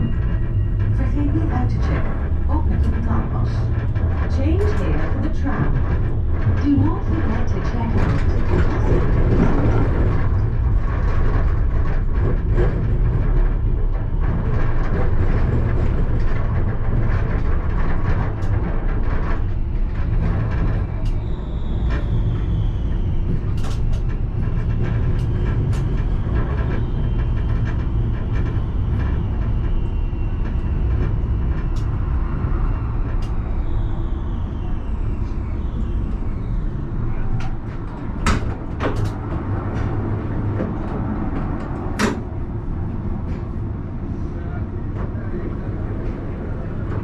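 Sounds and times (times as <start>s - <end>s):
tram rumbling on rails: 0.0s - 47.0s.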